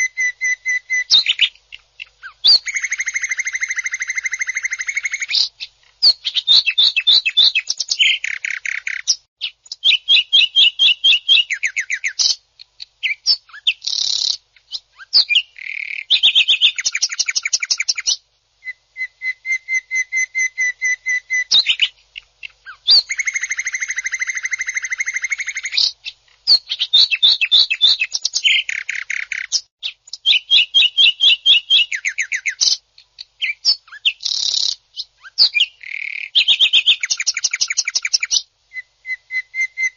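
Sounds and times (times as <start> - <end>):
bird singing rattling trills: 13.0 - 18.8, 33.4 - 39.9.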